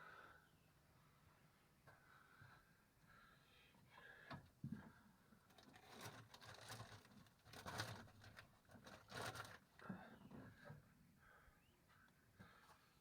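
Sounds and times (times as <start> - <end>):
faint rustling and scraping: 4.6 - 10.8.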